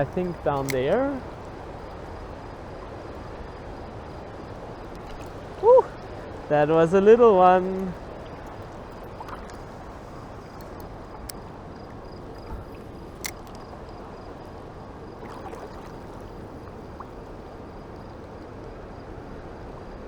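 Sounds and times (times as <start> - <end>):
light clicks: 0.0 - 1.2, 7.6 - 14.0.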